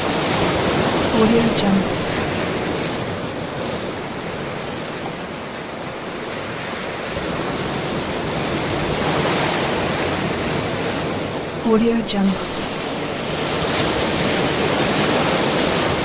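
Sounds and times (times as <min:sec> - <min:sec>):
ocean waves breaking: 0:00.0 - 0:16.0.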